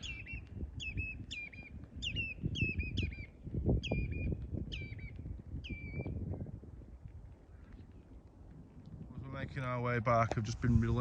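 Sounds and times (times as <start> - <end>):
low rumble: 10.2 - 11.0.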